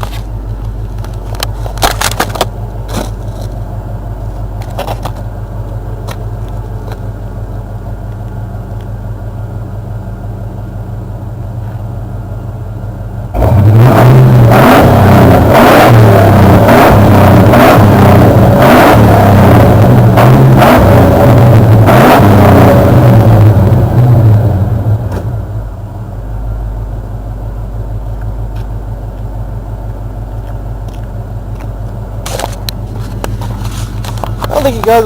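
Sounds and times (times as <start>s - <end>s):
car engine revving and idling: 0.0s - 35.0s.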